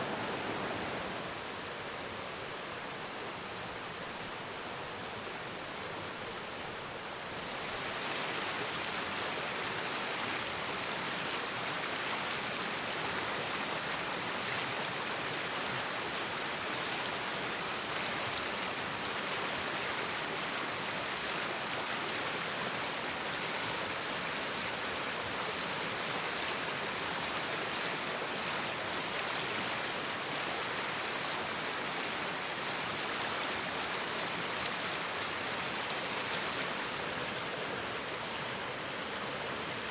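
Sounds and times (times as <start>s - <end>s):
stream flowing water: 0.0s - 39.9s.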